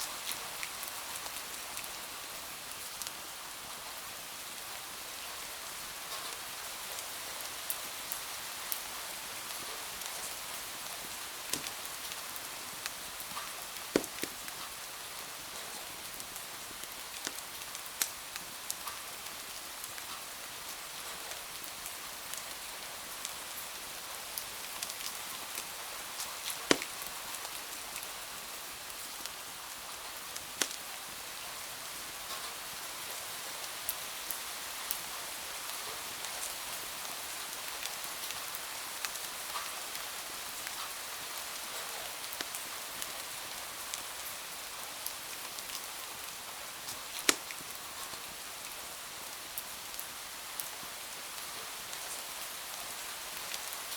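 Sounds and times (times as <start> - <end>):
steady rain hiss: 0.0 - 53.9
wood fire popping and crackling: 11.0 - 14.7, 16.2 - 18.5, 24.8 - 27.6, 30.4 - 30.9, 46.8 - 48.4.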